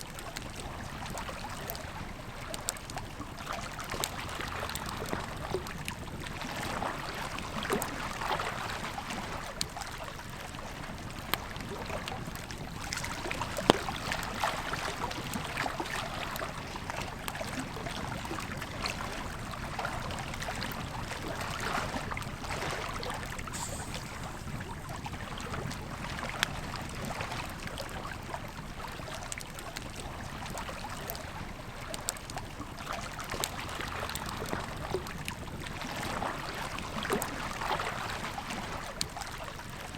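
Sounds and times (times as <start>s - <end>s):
campfire crackling and popping: 23.2s - 27.0s
river rushing: 23.5s - 25.5s.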